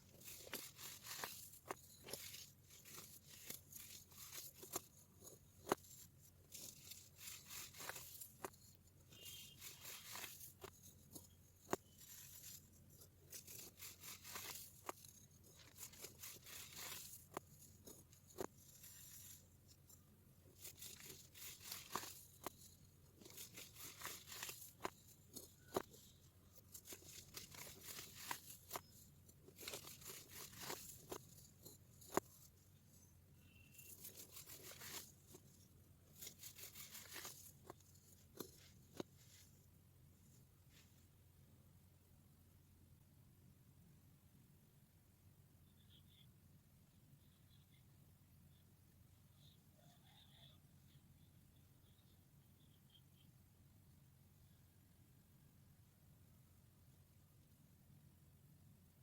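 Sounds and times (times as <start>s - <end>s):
baking soda crunching: 0.0s - 19.6s, 20.5s - 32.4s, 33.8s - 38.6s.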